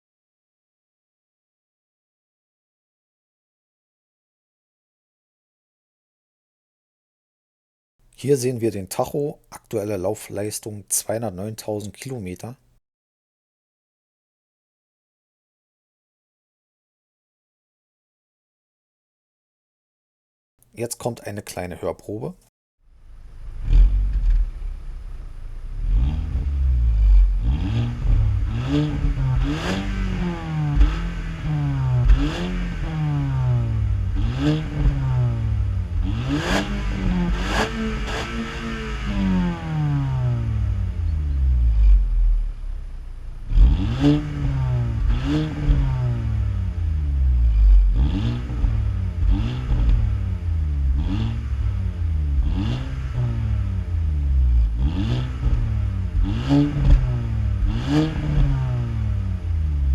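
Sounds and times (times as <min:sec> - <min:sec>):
car engine revving: 0:23.0 - 0:59.9.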